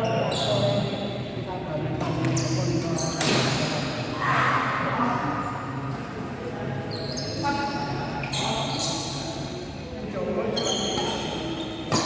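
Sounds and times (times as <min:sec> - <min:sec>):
shoe squeaks on court floor: 0:00.0 - 0:01.0, 0:02.2 - 0:03.6, 0:06.9 - 0:09.4, 0:10.5 - 0:12.0.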